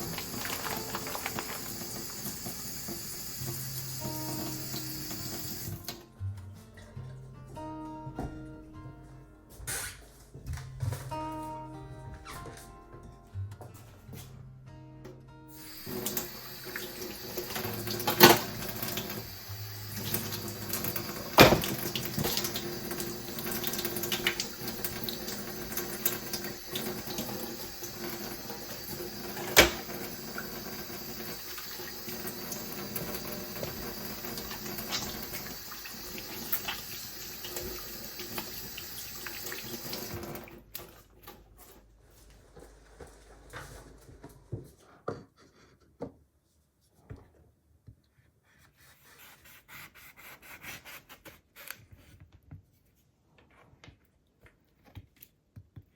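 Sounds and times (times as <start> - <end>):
tap water running into sink: 0.0 - 6.0, 15.6 - 41.0.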